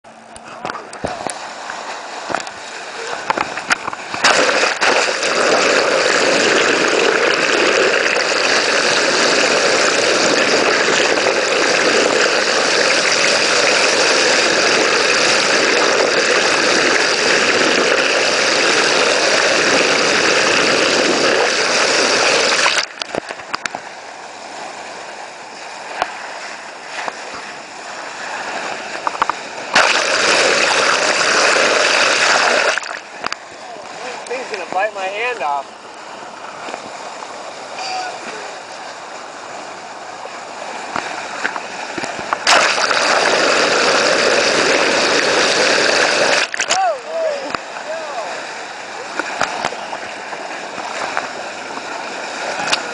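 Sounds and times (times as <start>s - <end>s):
water rushing past boat: 0.1s - 52.9s
water splashing: 0.1s - 52.9s.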